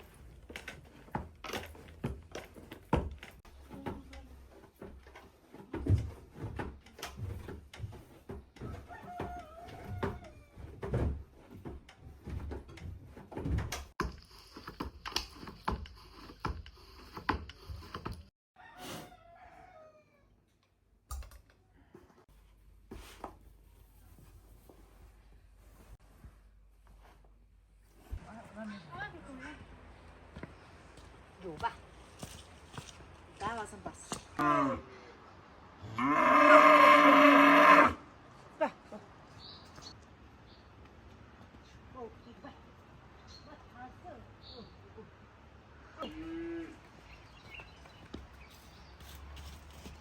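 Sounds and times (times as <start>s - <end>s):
rooster crowing: 8.7s - 10.4s, 18.6s - 20.2s.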